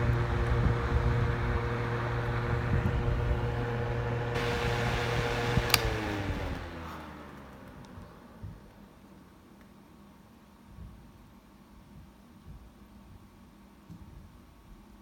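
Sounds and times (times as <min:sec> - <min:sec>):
box fan humming: 0:00.0 - 0:09.2
fan switch click: 0:05.6 - 0:06.6.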